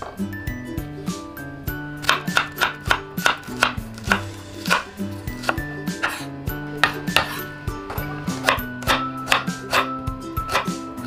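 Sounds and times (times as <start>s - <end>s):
light background music: 0.0s - 11.0s
knife chopping on wooden board: 2.0s - 10.8s.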